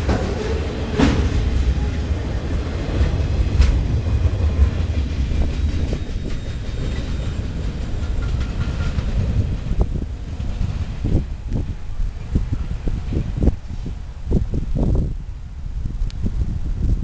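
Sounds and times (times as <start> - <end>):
wheels clicking over rail joints: 0.0 - 13.6
freight train wheels rumbling: 0.0 - 17.0.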